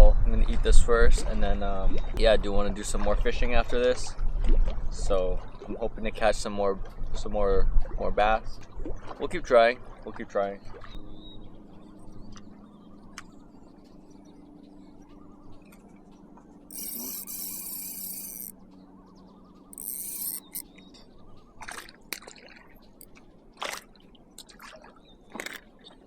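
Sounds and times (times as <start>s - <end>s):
fishing reel whirring: 16.7s - 18.6s, 19.7s - 20.6s.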